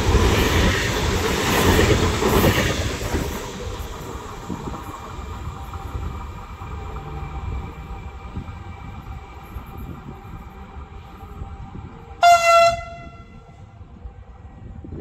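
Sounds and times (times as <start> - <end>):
electric train rumbling: 0.0 - 15.0
train horn blast: 12.2 - 13.8.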